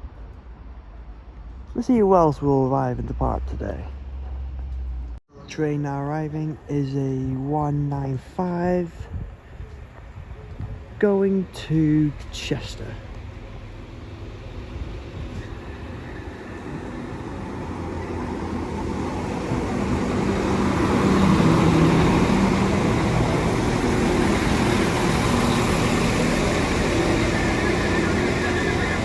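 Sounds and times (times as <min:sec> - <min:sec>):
train diesel engine: 0:00.0 - 0:29.0
train wheel rumble: 0:09.1 - 0:29.0.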